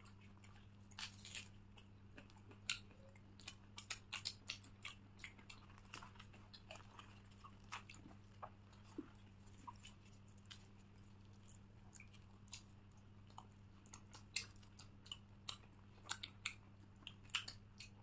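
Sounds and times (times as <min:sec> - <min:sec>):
faint low hum: 0:00.0 - 0:18.0
people chewing food: 0:00.0 - 0:18.0.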